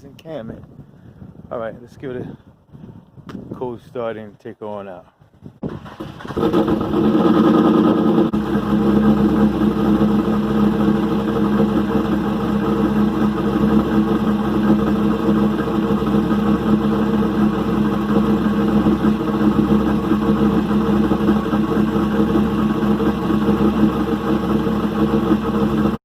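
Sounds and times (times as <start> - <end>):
car engine idling: 5.8 - 26.0.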